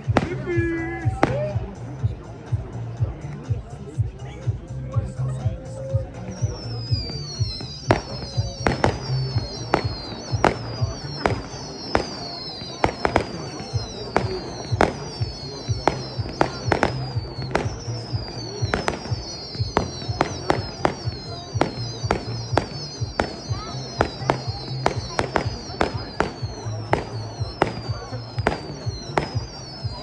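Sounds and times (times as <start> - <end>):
firework bangs: 0.0 - 1.8, 6.3 - 30.0
falling firework whistles: 5.9 - 30.0.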